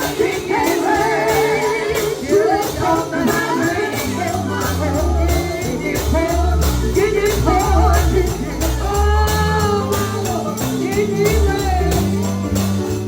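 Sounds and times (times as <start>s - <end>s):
person singing gospel: 0.0s - 13.0s
tambourine beat: 0.0s - 13.0s
bass line: 2.9s - 13.0s.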